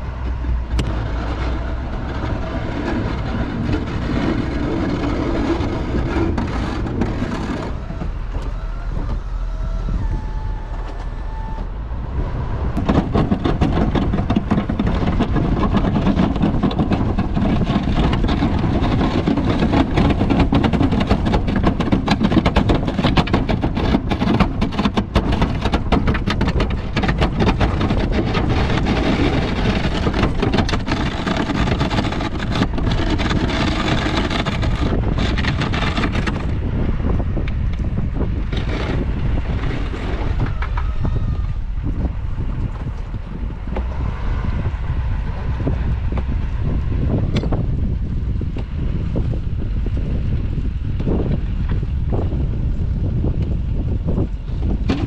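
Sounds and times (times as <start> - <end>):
dense rapid clatter: 0.7 - 8.4, 12.8 - 37.4.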